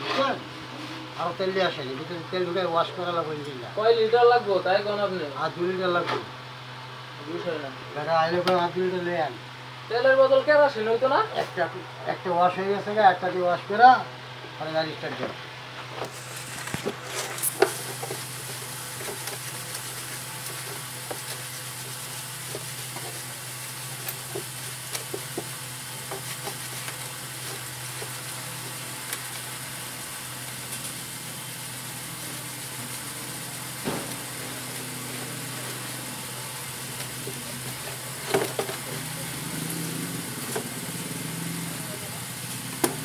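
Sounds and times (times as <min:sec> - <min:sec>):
steady hiss: 0:16.1 - 0:43.0.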